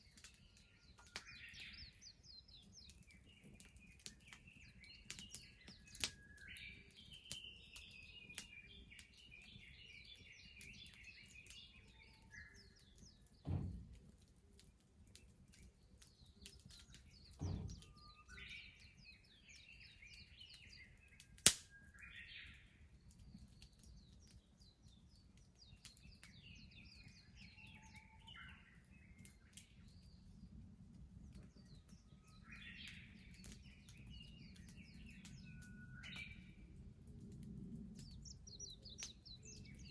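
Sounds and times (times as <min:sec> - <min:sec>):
songbirds twittering: 0:00.0 - 0:39.9
wood bonfire crackling: 0:00.0 - 0:39.9
sharp loud pop: 0:13.4 - 0:14.0, 0:17.4 - 0:18.5
dull thuds: 0:13.4 - 0:14.3, 0:17.3 - 0:18.0.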